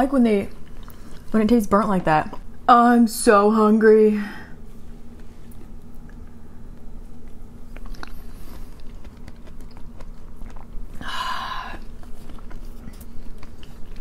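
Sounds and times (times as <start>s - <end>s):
chewing and wet mouth clicks: 5.5s - 11.0s, 11.7s - 14.0s.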